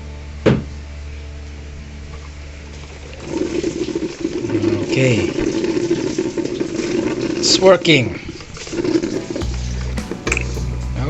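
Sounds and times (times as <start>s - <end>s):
coffee maker gurgling and hissing: 3.2s - 7.5s.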